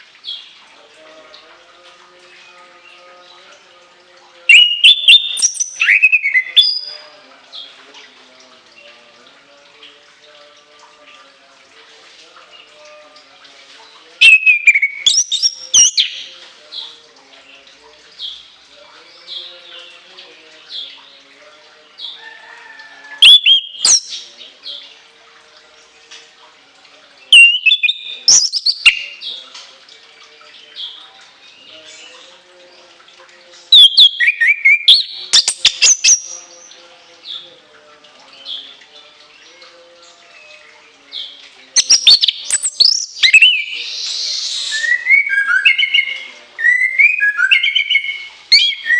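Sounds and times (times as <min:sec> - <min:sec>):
thrush singing whistled notes: 0:04.5 - 0:07.0, 0:14.2 - 0:16.3, 0:23.2 - 0:24.3, 0:27.3 - 0:29.3, 0:33.7 - 0:36.8, 0:41.2 - 0:48.9.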